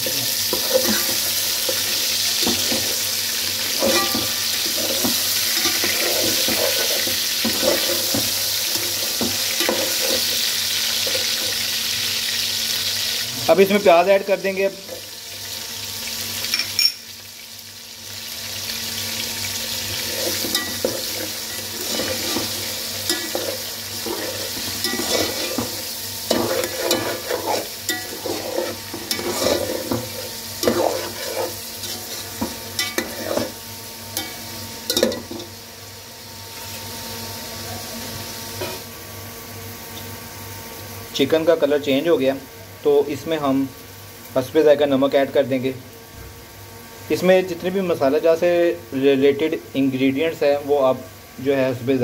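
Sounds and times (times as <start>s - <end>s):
food sizzling in a pot: 0.0s - 52.0s
utensil scraping a pot: 0.5s - 11.6s, 19.9s - 33.6s.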